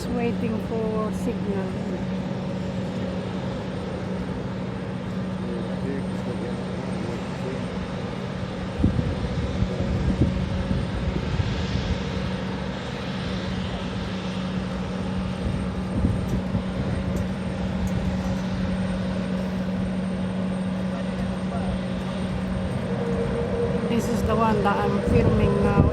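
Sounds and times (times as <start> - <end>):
airliner engines idling: 0.0 - 25.9.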